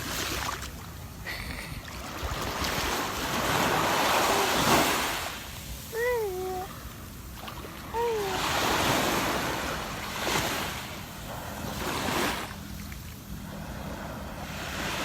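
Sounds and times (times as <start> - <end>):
sea waves on a beach: 0.0 - 15.0
small child calling: 4.0 - 5.0, 5.9 - 6.8, 7.9 - 8.8.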